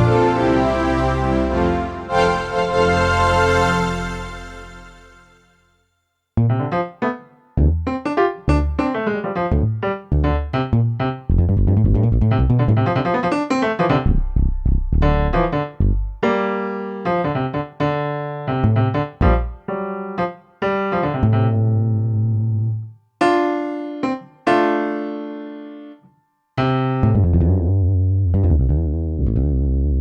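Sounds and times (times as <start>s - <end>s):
keyboard piano chords: 0.0s - 5.5s, 6.4s - 27.5s.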